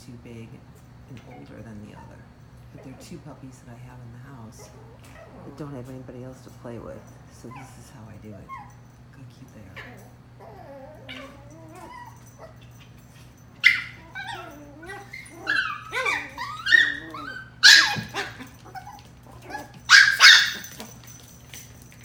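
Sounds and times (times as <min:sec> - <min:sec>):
puppies yipping and whining: 0:09.8 - 0:22.0.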